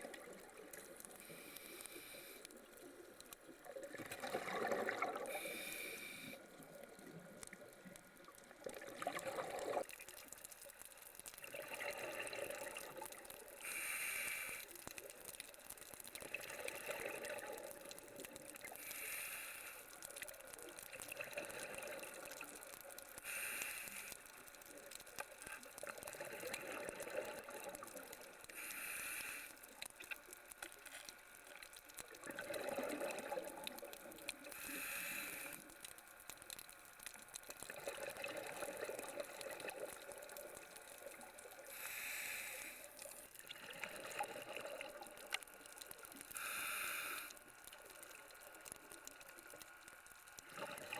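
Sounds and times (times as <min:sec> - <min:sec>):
exhaled bubbles gurgling: 0:00.0 - 0:13.9, 0:15.0 - 0:18.9, 0:20.1 - 0:23.5, 0:24.8 - 0:28.5, 0:31.7 - 0:35.9, 0:37.2 - 0:50.9
regulator inhale hiss: 0:01.0 - 0:02.6, 0:05.2 - 0:06.5, 0:13.6 - 0:14.9, 0:18.7 - 0:20.1, 0:23.2 - 0:24.4, 0:28.5 - 0:29.8, 0:34.4 - 0:35.8, 0:41.6 - 0:43.2, 0:46.3 - 0:47.6.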